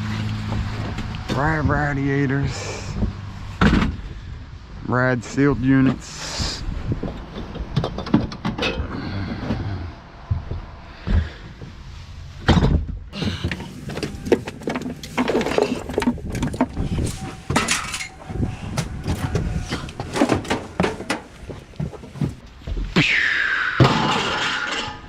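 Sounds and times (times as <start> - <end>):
scrap metal clanking: 12.4 - 22.4, 23.8 - 25.0.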